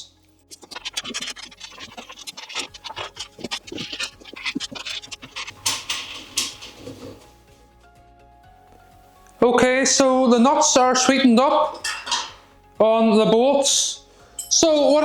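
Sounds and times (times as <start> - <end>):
small metal clicks and scrapes: 0.5 - 7.3, 11.8 - 12.4.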